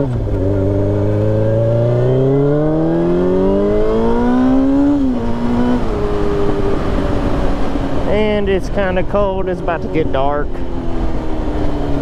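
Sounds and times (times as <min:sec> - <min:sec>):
sport bike engine accelerating: 0:00.0 - 0:12.0.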